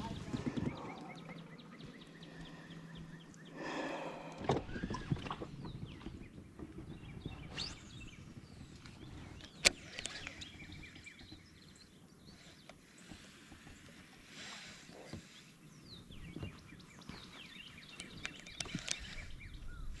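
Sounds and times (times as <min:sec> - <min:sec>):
faint bird chirps: 0:00.0 - 0:14.0
kayak handling noises: 0:00.0 - 0:20.0.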